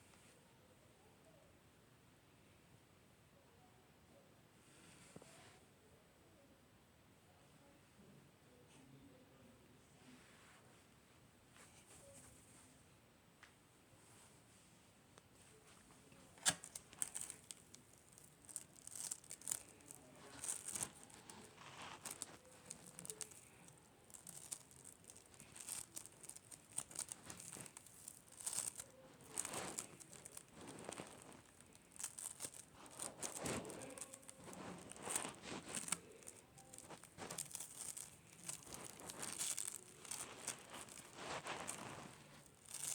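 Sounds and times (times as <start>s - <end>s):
slime crackling and popping: 16.4s - 42.9s.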